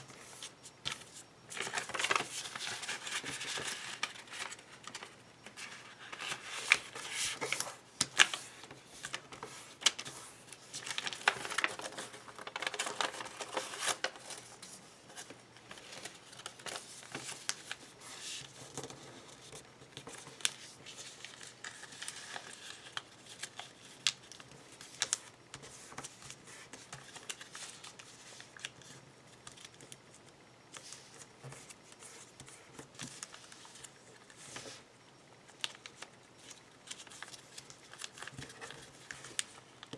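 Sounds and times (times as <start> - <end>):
paper rustling and crinkling: 0.0 - 30.0, 35.5 - 39.9.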